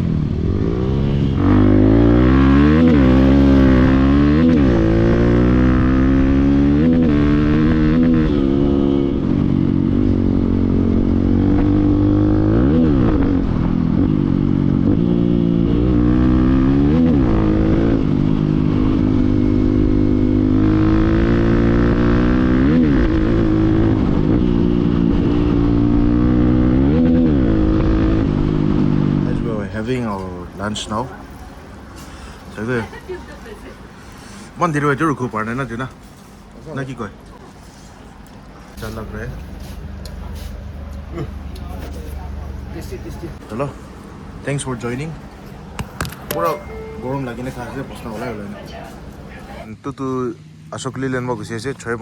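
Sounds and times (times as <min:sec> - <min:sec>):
motorcycle engine revving: 0:00.0 - 0:30.9.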